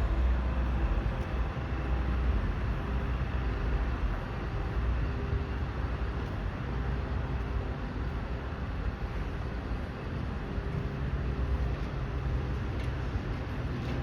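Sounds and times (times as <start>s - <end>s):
rumble of buses and traffic: 0.0s - 14.0s.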